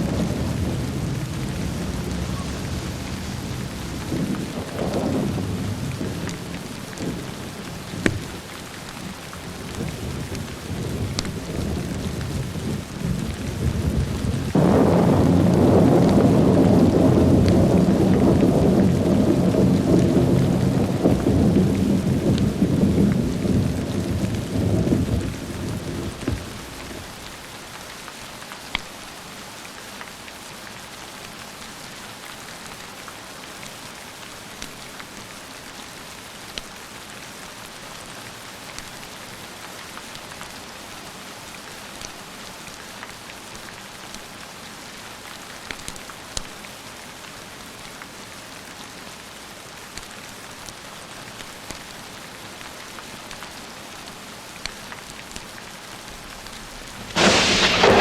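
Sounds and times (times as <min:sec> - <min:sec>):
thunder rumbling: 0:00.0 - 0:27.3, 0:56.7 - 0:58.0
steady rain: 0:00.0 - 0:58.0.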